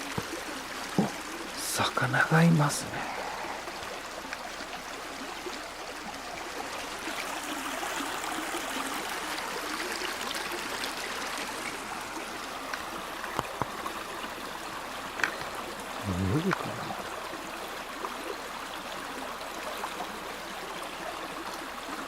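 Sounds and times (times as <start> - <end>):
river flowing over stones: 0.0 - 22.0
faint clicks: 3.8 - 4.7, 12.6 - 14.0, 15.1 - 15.7.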